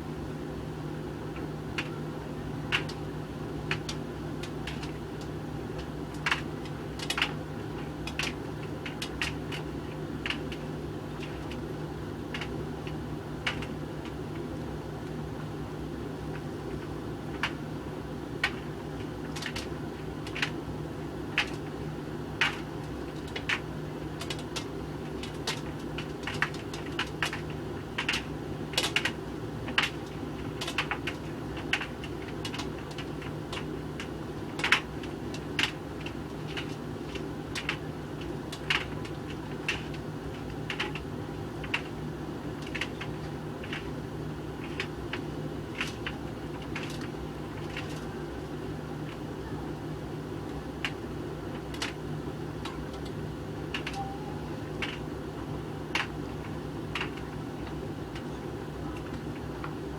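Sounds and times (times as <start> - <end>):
sharp irregular clicks: 3.7 - 10.6, 12.3 - 14.2, 19.2 - 20.6, 21.3 - 21.6, 22.4 - 23.6, 24.2 - 42.0, 42.6 - 43.9, 44.6 - 48.1, 50.8 - 52.0, 52.6 - 54.1, 54.7 - 55.1, 55.9 - 56.2, 56.9 - 58.3.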